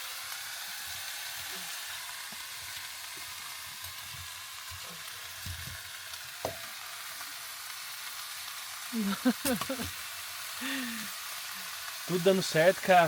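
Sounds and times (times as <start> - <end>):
fire crackling: 0.0 - 13.0
food sizzling in a pan: 0.0 - 13.0.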